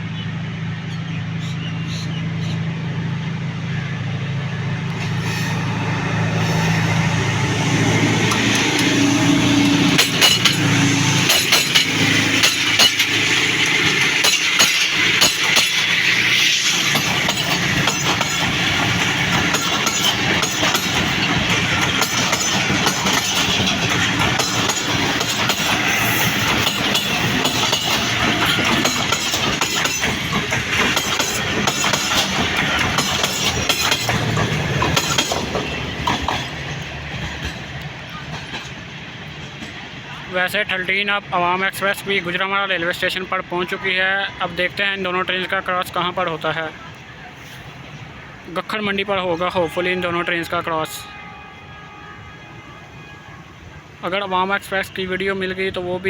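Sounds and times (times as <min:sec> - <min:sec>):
passing train rush: 0:00.0 - 0:56.0
train wheels clicking over rail joints: 0:04.8 - 0:40.8.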